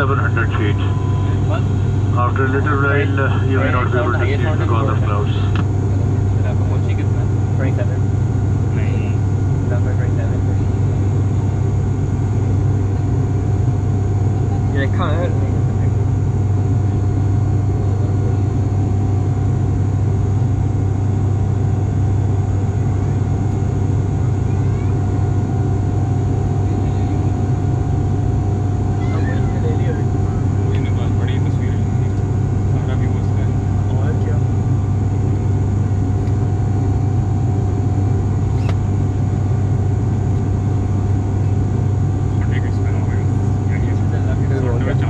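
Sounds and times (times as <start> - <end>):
aircraft cabin drone: 0.0 - 45.0
faint high steady tone: 0.4 - 1.6.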